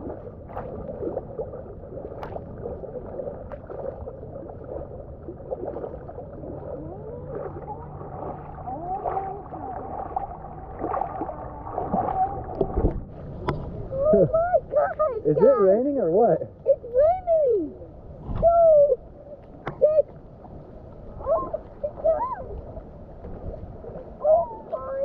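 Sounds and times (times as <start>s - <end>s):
muffled water sloshing and gurgling: 0.0s - 25.0s
faint wavering tones: 4.4s - 25.0s
underwater knocks: 9.9s - 13.8s.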